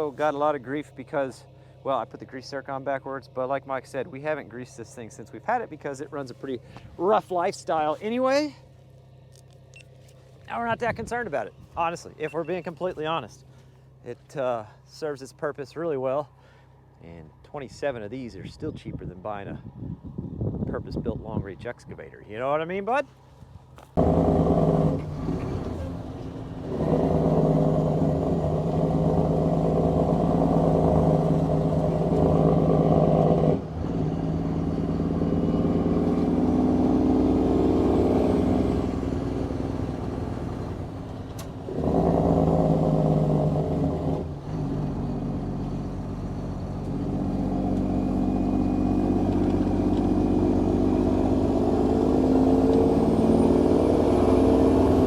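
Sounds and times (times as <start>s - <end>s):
diesel truck engine shifting gears: 5.0s - 14.2s, 23.8s - 55.0s.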